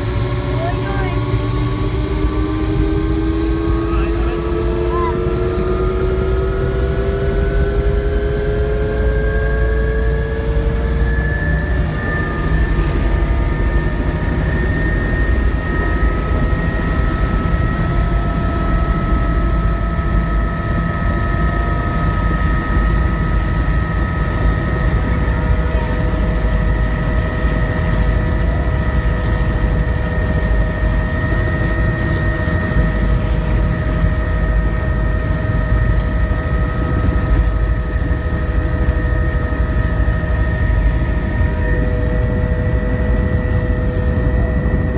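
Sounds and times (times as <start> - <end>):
high whining tones: 0.0 - 25.2
helicopter rotor and engine: 0.0 - 44.9.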